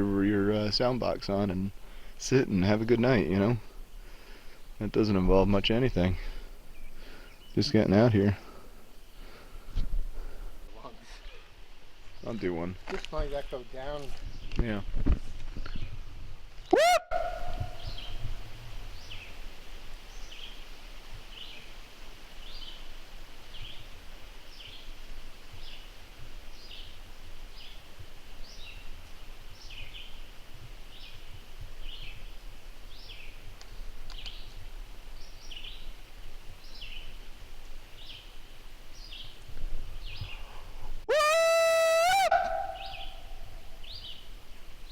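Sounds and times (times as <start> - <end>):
bird chirping: 16.8 - 18.3, 40.0 - 44.9
wind rumble on microphone: 17.2 - 19.9.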